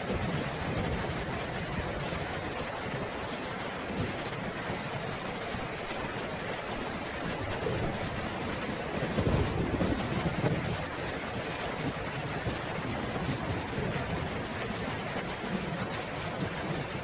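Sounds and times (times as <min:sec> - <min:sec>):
steady rain falling: 0:00.0 - 0:17.0
low rumble of thunder: 0:07.3 - 0:17.0.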